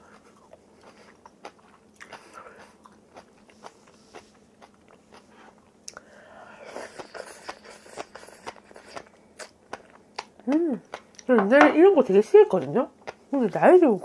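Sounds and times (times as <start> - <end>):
chewing crunchy food: 0.0 - 6.1, 6.7 - 11.3.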